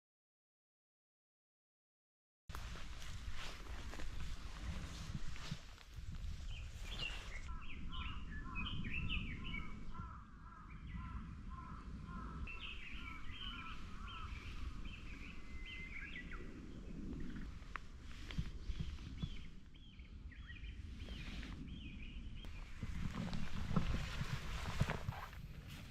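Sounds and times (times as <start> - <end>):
small birds chirping: 6.2 - 23.9.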